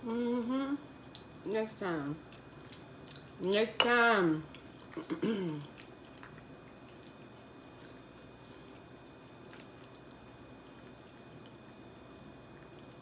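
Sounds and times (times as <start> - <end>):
person humming mm: 0.0 - 0.8
soft chewing: 2.1 - 3.4, 4.4 - 13.0.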